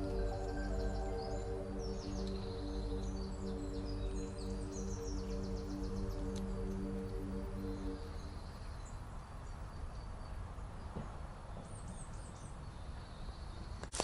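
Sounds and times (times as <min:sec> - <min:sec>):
low rumble: 0:00.0 - 0:09.0
birds chirping: 0:00.0 - 0:11.0.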